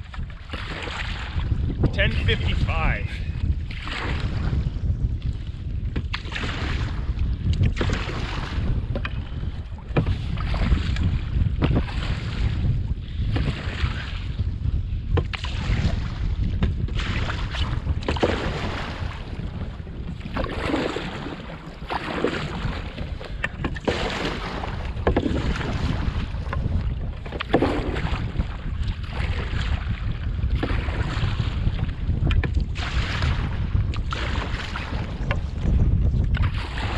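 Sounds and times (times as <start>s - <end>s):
paddle strokes splashing water: 0.0s - 36.9s
wind buffeting microphone: 0.0s - 36.9s
paddle knocking: 5.2s - 12.6s, 13.2s - 14.2s, 15.1s - 15.6s, 16.4s - 36.9s.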